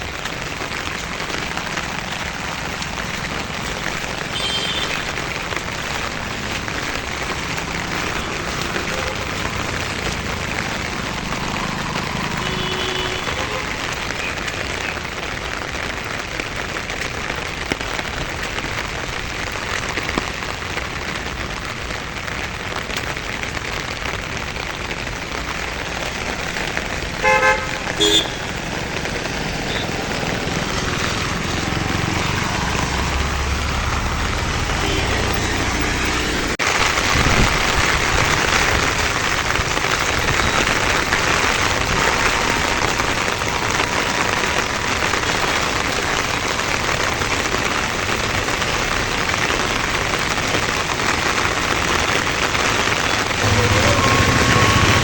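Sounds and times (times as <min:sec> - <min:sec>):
heavy rain: 0:00.0 - 0:55.0
vehicle horn toots: 0:04.3 - 0:05.1, 0:12.3 - 0:13.8, 0:27.2 - 0:28.6, 0:29.6 - 0:29.9, 0:34.8 - 0:35.8, 0:53.4 - 0:55.0.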